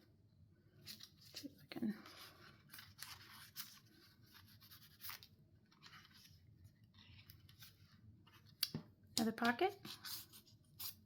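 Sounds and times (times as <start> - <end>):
paper pages rustling: 0.8 - 8.6.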